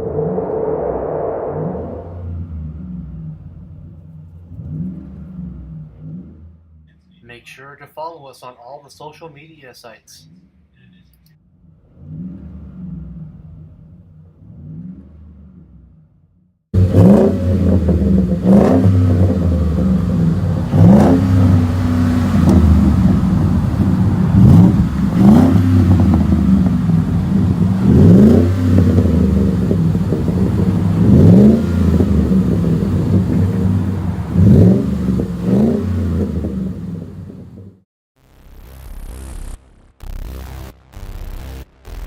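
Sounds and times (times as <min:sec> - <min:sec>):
engine revving through exhaust: 0:00.0 - 0:07.2, 0:10.2 - 0:37.8.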